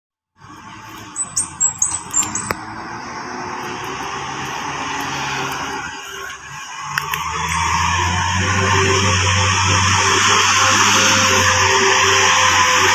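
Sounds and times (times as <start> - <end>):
diesel truck engine labouring: 0.4 - 12.9
sharp clicks: 0.9 - 2.7
short high beeps: 1.2 - 2.6.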